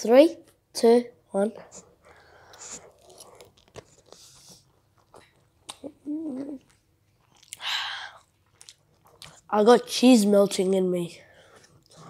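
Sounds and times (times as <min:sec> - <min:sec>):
mouth chewing pasta: 0:01.6 - 0:09.6, 0:11.3 - 0:12.0
person humming: 0:05.8 - 0:06.6.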